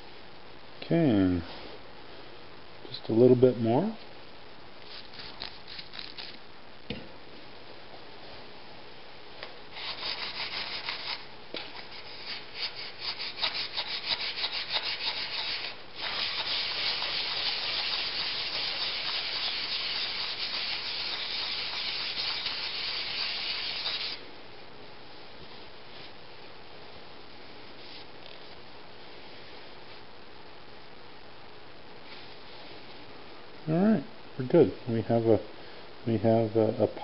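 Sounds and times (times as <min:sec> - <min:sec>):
chisel rubbing on sandpaper: 0:09.8 - 0:24.2.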